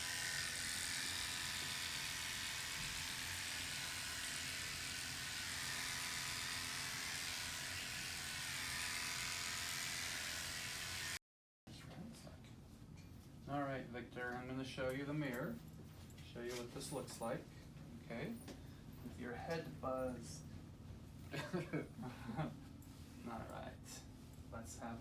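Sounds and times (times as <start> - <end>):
electric hair clippers buzzing: 0.0 - 11.2.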